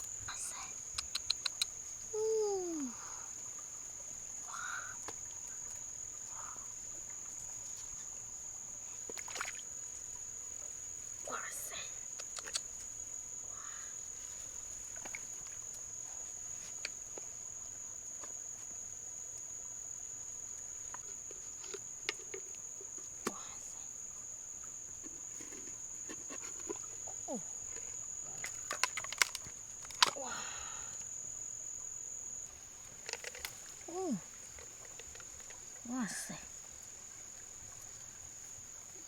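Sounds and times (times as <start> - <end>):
insect trilling: 0.0 - 7.3, 11.1 - 16.0, 24.8 - 38.4.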